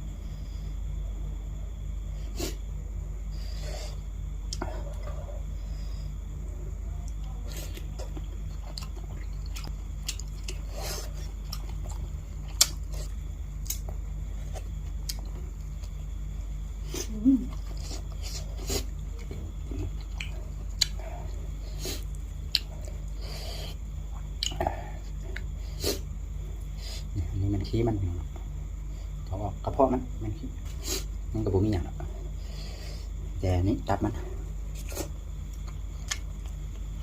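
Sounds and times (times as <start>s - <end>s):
steady low hum: 0.0s - 37.0s
person chewing food: 7.0s - 16.0s, 16.9s - 26.0s, 34.8s - 37.0s.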